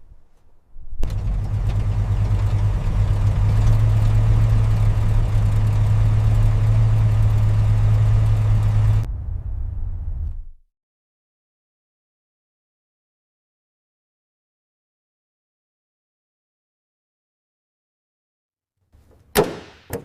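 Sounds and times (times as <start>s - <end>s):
engine idling hum: 0.0s - 10.6s.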